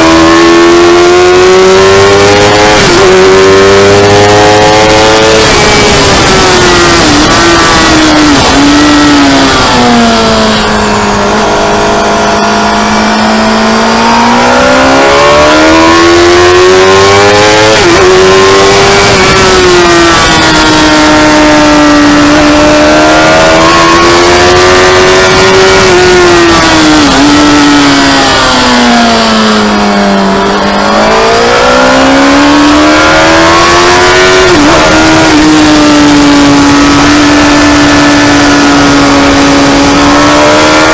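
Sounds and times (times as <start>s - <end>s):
motorcycle engine running hard: 0.0s - 40.9s
wind rush: 2.6s - 12.9s.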